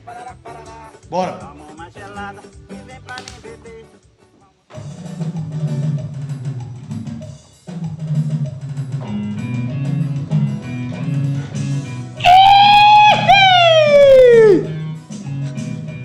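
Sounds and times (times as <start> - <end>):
drum kit: 2.9 - 3.8, 4.7 - 16.0
bass line: 9.3 - 14.8.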